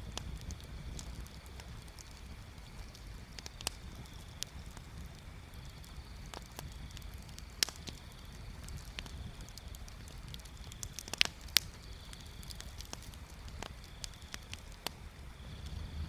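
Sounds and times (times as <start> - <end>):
bonfire crackling: 0.0 - 16.0
burning wood popping: 0.0 - 16.0
low rumble: 15.4 - 16.0.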